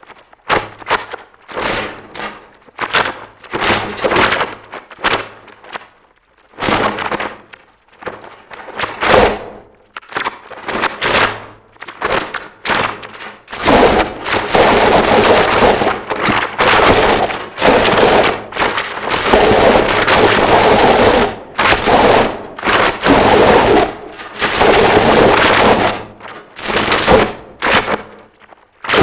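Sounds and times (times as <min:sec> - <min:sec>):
harsh distorted noise music: 0:13.6 - 0:28.3.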